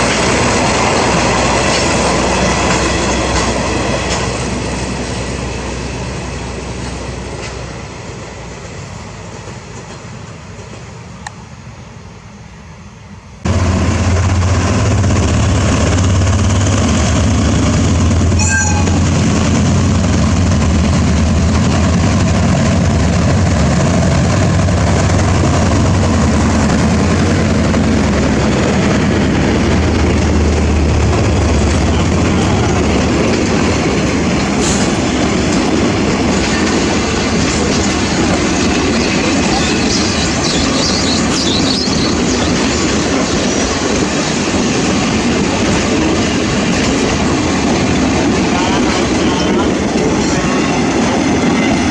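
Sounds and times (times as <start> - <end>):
passing train: 0.0 - 51.9
train rail noise: 0.0 - 51.9
low engine drone: 13.4 - 43.0.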